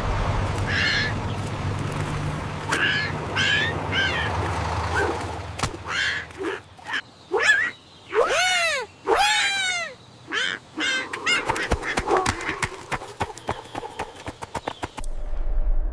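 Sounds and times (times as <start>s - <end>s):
low hum: 15.0s - 15.9s.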